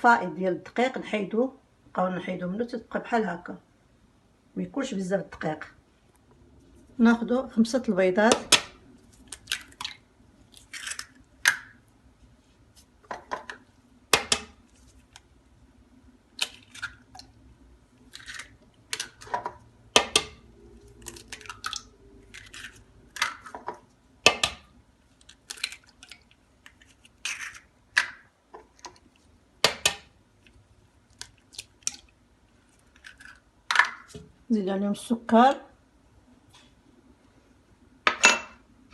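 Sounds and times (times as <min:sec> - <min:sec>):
eggs cracking on bowl rim: 0:08.3 - 0:10.0, 0:10.6 - 0:11.8, 0:16.3 - 0:17.4, 0:18.1 - 0:32.2.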